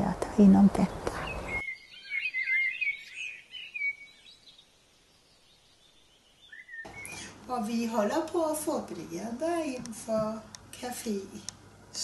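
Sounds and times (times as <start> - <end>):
songbird warbling: 0.8 - 7.4.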